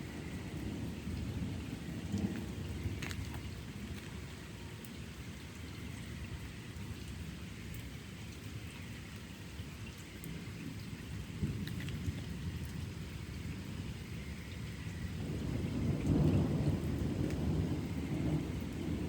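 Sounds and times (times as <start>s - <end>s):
low thunder rumble: 0.0s - 4.3s, 10.7s - 19.0s
steady rain: 0.0s - 19.0s
raindrop ticks: 0.2s - 6.4s, 7.0s - 19.0s.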